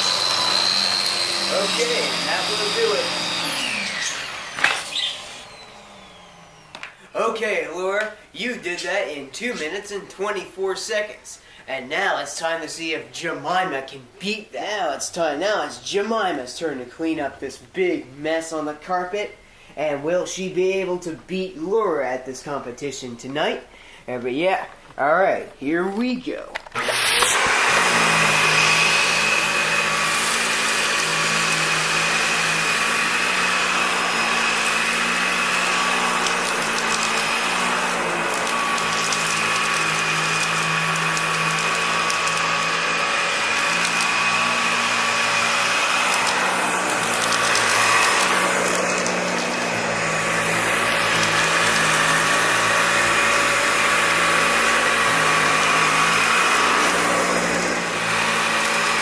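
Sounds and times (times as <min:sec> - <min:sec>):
vacuum cleaner running on carpet: 0:00.0 - 0:06.9, 0:26.8 - 0:59.0.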